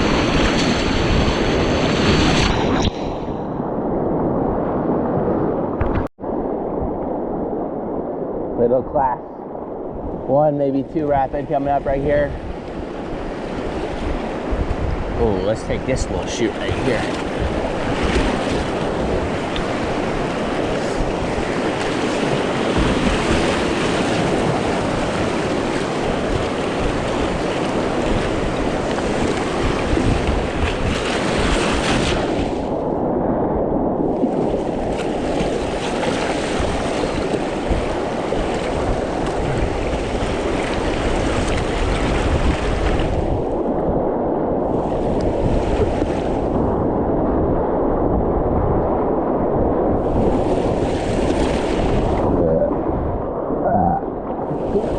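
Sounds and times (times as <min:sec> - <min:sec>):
wind buffeting microphone: 0:00.0 - 0:54.9
rushing whitewater: 0:15.2 - 0:32.4.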